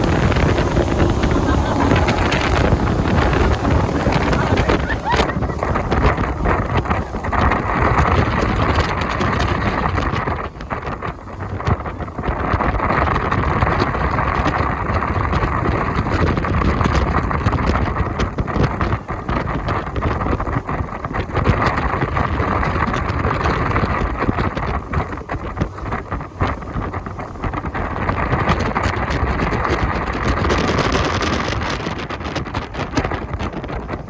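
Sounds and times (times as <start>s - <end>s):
jet boat engine rushing: 0.0s - 5.3s
wind buffeting microphone: 0.0s - 14.4s, 15.2s - 34.0s.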